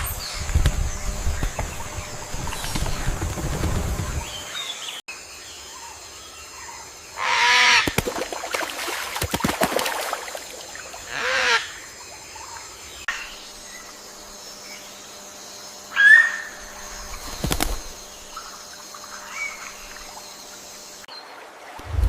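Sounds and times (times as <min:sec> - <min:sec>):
harsh animal calls: 0:11.0 - 0:11.8.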